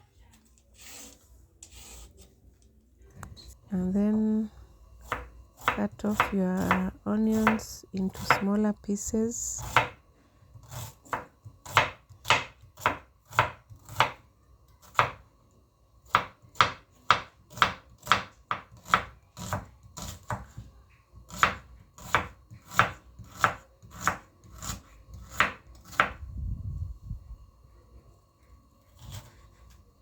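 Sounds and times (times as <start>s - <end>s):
knife chopping on cutting board: 5.0s - 8.5s, 9.6s - 14.2s, 14.8s - 15.2s, 16.1s - 26.2s, 29.0s - 29.8s.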